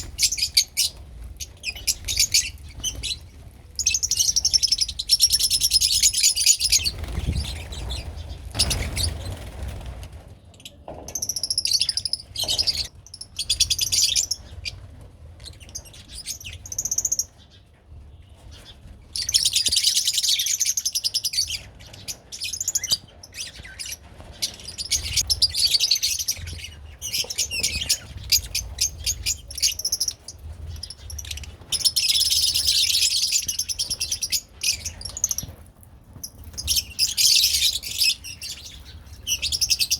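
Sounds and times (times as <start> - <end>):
lovebirds chattering: 0.0 - 9.5, 18.2 - 35.6, 36.2 - 39.9.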